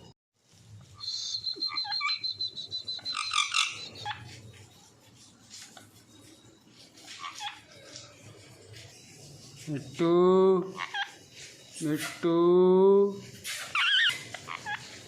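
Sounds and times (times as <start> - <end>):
parrot high pulsing trill: 0.8 - 12.2, 13.6 - 15.0
parrot squawks: 1.0 - 4.4, 7.0 - 7.8, 10.7 - 11.2, 13.5 - 15.0.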